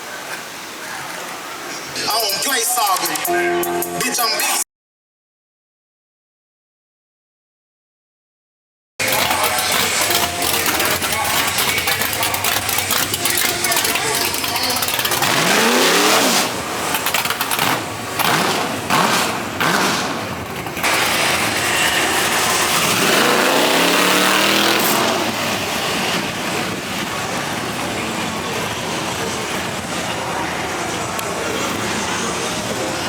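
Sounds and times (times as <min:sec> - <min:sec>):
car engine revving: 0:09.0 - 0:33.0
loud rushing noise: 0:09.0 - 0:33.0.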